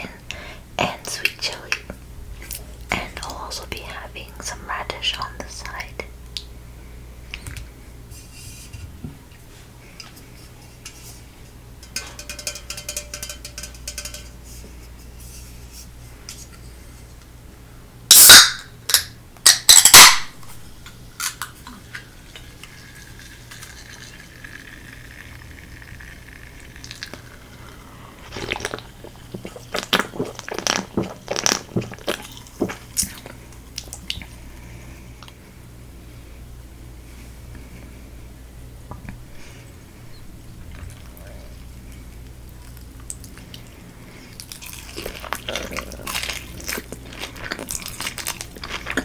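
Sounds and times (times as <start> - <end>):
dishes and utensils clinking: 9.9 - 15.5
sharp clicks and knocks: 11.8 - 14.4.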